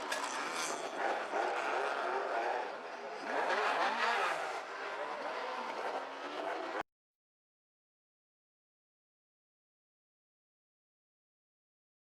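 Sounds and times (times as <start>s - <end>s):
rally car engine revving: 0.0s - 6.8s.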